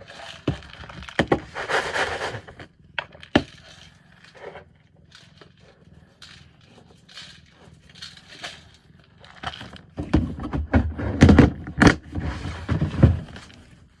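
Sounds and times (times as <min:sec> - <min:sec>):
rustling: 0:00.0 - 0:14.0.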